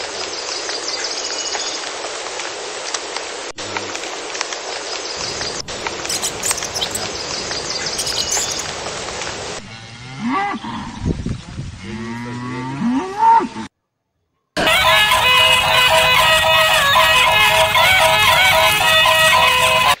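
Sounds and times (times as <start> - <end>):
cows mooing: 9.6 - 11.0, 11.8 - 13.7.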